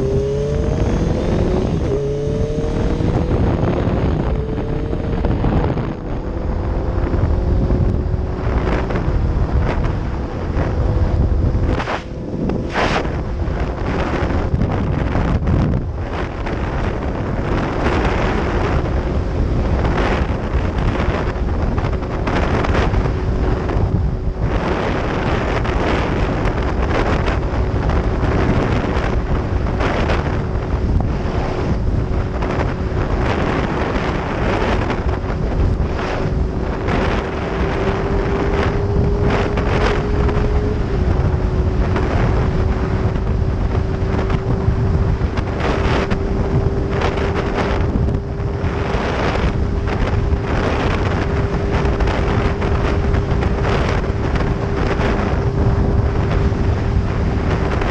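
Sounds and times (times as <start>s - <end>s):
motorcycle engine drone: 0.0s - 57.9s
wind buffeting microphone: 0.0s - 57.9s.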